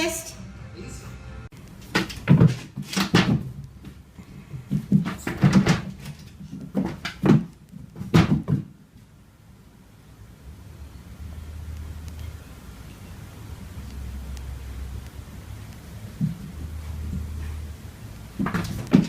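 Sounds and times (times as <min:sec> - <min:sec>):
sharp knocks and bangs: 0:01.8 - 0:03.6.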